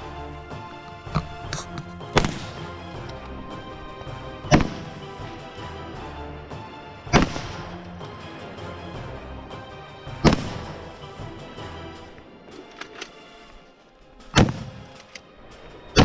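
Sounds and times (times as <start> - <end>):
background music: 0.0 - 16.0
rifle shots: 0.8 - 3.2, 14.3 - 15.2.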